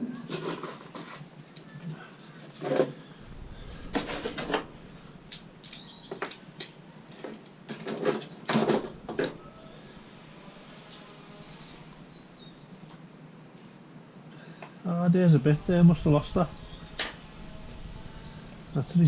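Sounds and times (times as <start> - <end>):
faint bird chirping: 3.0 - 7.1, 8.8 - 12.9, 15.6 - 19.0
metal parts clattering: 5.3 - 9.4.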